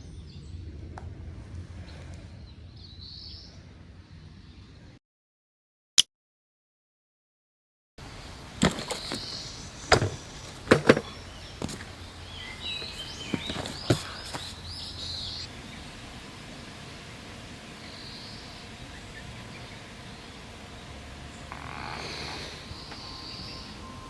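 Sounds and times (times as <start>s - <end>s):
outdoor background: 0.0s - 5.0s, 8.0s - 24.0s
bird singing: 8.0s - 24.0s.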